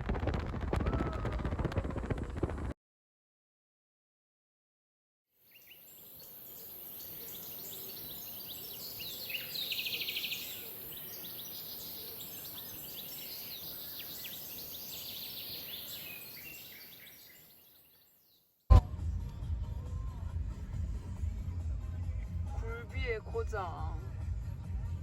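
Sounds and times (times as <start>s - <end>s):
birds chirping and calling: 5.5s - 17.8s.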